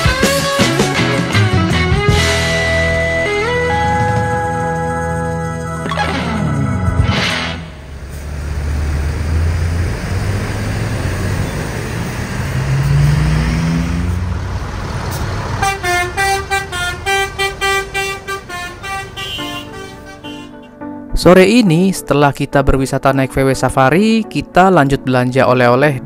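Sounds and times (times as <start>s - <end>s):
bus engine running: 0.0s - 20.7s
multi-tone musical horn: 15.6s - 20.8s.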